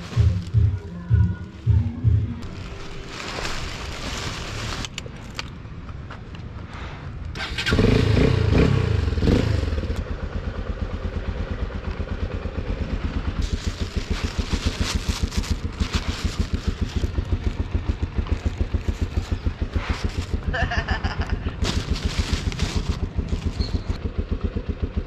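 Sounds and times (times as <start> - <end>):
motorcycle engine starting and idling: 7.3 - 25.0.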